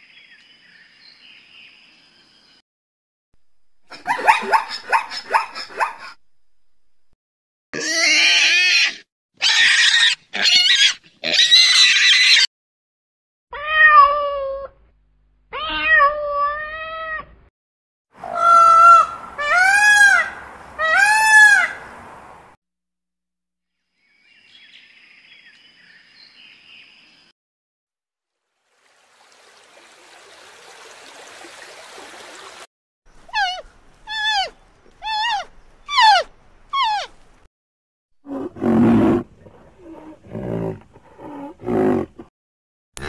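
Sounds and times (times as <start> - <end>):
cat meowing: 13.6 - 14.7, 15.5 - 17.3.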